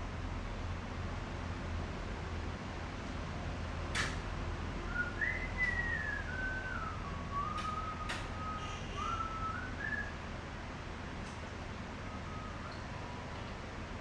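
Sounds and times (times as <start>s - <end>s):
person whistling a tune: 4.9s - 10.2s, 12.1s - 12.8s
sharp clicks: 7.5s - 8.3s.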